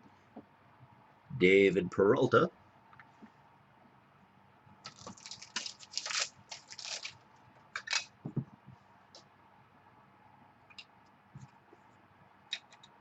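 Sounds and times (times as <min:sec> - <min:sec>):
soft thump: 0:08.2 - 0:08.6.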